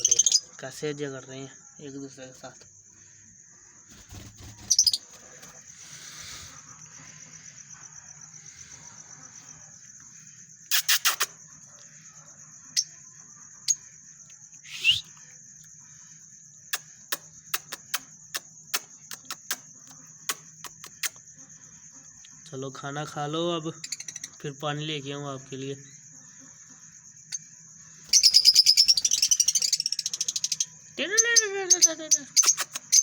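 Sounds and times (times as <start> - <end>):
lovebirds chirping and squawking: 0.0 - 0.6, 3.9 - 7.4, 10.7 - 11.3, 23.8 - 24.4, 28.0 - 33.0.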